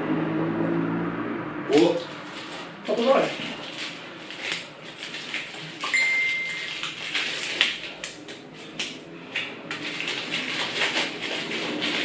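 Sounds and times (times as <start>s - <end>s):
package crinkling and rustling: 2.0s - 12.0s
brief high tone: 5.9s - 6.8s.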